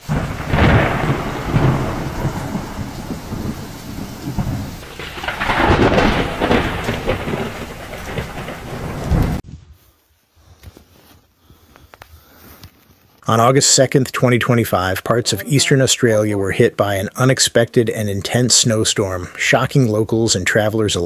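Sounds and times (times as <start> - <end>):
steady rain: 0.0 - 9.4, 13.4 - 21.0
thunder rumbling: 0.0 - 9.4.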